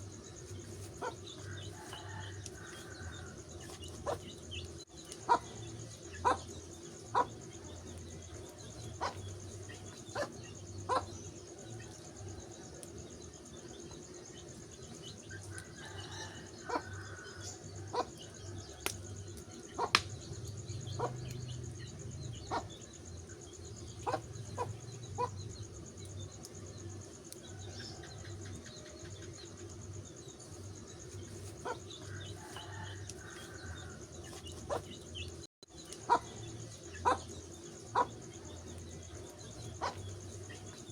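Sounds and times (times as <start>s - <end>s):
wood fire crackling: 0.0s - 16.0s, 18.8s - 22.2s, 30.4s - 40.9s
sharp pops from fire: 18.7s - 20.5s.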